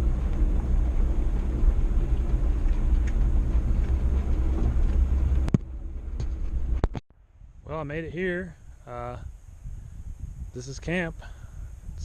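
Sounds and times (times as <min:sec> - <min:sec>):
truck engine and tyre rumble: 0:00.0 - 0:07.6.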